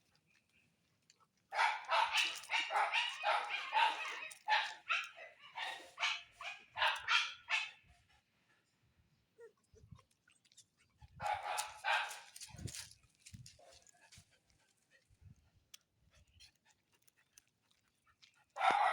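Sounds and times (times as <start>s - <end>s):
dog barking: 1.5s - 7.9s, 11.2s - 12.7s, 18.6s - 18.9s.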